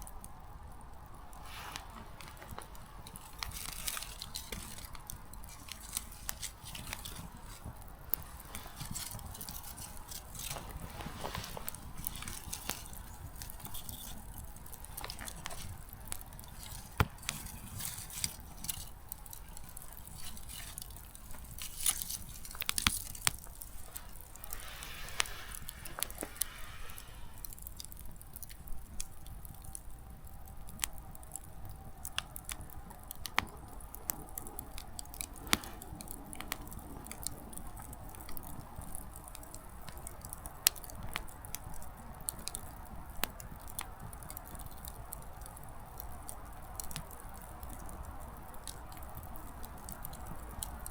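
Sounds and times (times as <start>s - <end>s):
wood fire crackling and popping: 0.0s - 50.9s
brief rushing hiss: 24.4s - 27.4s.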